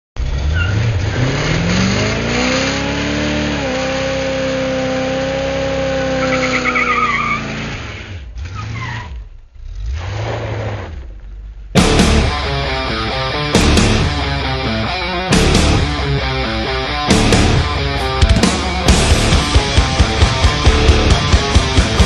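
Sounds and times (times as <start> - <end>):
tire noise: 0.2 - 22.0
truck engine revving: 0.2 - 22.0
tire squeal: 0.3 - 1.6, 5.8 - 11.4.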